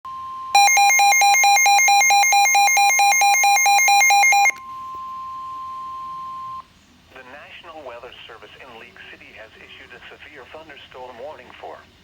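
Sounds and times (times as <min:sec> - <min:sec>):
loud electronic beeping: 0:00.6 - 0:04.6
steady alarm tone: 0:00.6 - 0:06.6.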